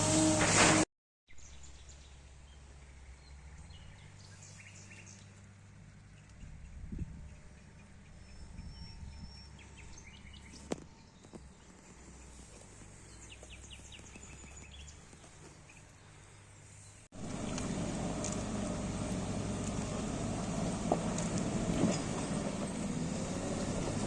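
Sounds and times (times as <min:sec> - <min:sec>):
distant low engine hum: 0:01.6 - 0:24.0
diesel engine running: 0:17.2 - 0:24.0.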